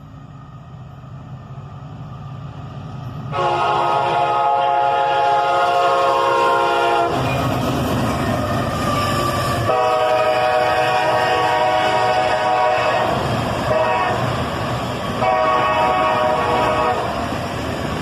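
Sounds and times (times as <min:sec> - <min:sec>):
train low rumble: 0:00.0 - 0:18.0
locomotive air horn blasts: 0:03.3 - 0:07.3, 0:09.6 - 0:14.3, 0:15.2 - 0:17.2.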